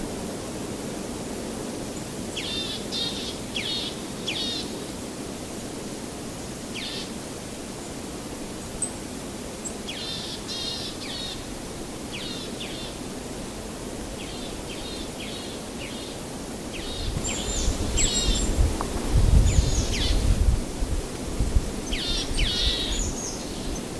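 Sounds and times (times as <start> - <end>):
steady outdoor hiss: 0.0 - 23.9
small birds chirping: 14.2 - 18.6, 21.8 - 23.9.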